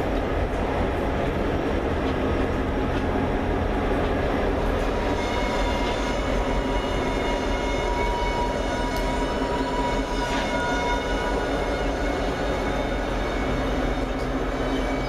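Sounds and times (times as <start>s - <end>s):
locomotive high whine: 0.0s - 15.0s
train wheels rumbling on rail: 0.0s - 15.0s.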